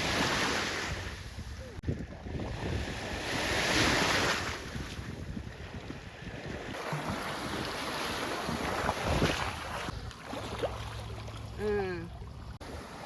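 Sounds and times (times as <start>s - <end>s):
wind on microphone: 0.0s - 6.8s, 8.4s - 10.1s.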